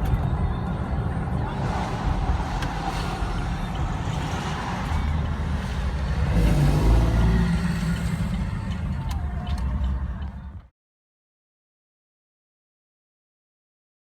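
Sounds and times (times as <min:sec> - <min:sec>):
road traffic: 0:00.0 - 0:10.7.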